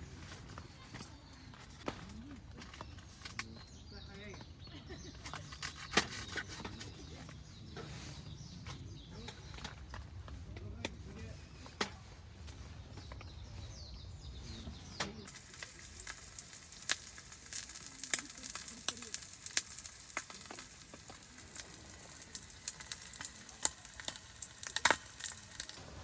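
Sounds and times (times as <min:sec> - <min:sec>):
sizzling hiss with crackles: 0:15.3 - 0:26.0.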